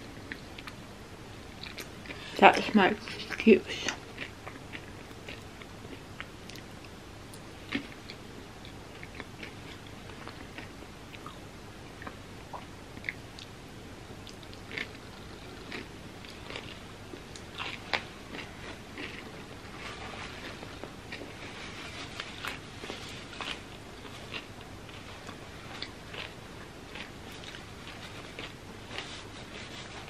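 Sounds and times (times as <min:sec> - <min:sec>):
person chewing crispy candy bar: 0:04.1 - 0:06.7, 0:14.2 - 0:21.6, 0:22.2 - 0:29.6
crackling crunches: 0:14.2 - 0:30.0.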